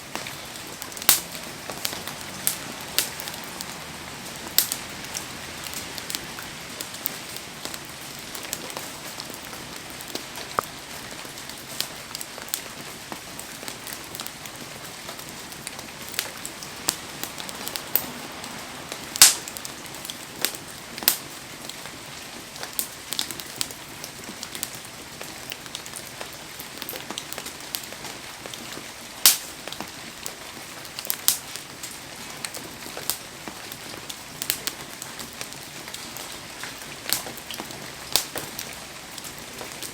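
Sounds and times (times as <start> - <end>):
heavy rain hissing: 0.0 - 12.0, 12.7 - 22.5
campfire crackling and popping: 0.0 - 39.9.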